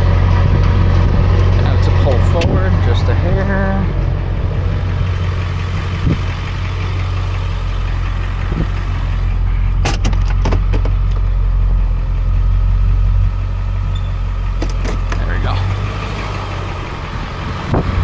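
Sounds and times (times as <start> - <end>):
truck engine droning: 0.0 - 18.0.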